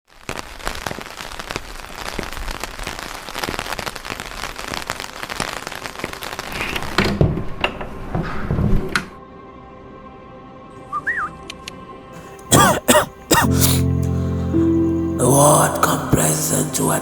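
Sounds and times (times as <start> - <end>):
loud low-pitched sound: 13.4 - 17.0.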